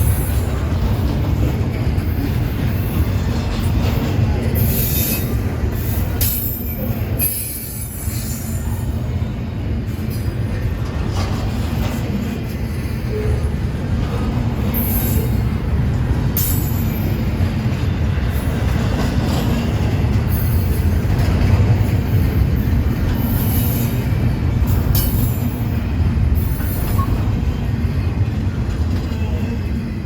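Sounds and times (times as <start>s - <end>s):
freight train wheels rumbling: 0.0s - 30.0s.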